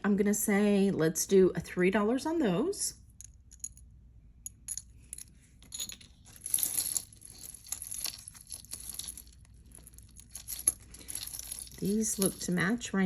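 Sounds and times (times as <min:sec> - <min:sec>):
metal jewelry clinking: 0:03.1 - 0:13.0.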